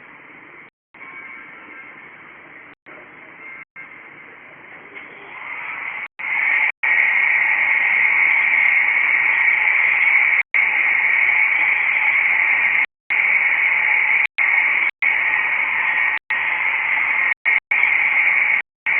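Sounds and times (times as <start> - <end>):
loud static hiss: 4.1 - 18.9.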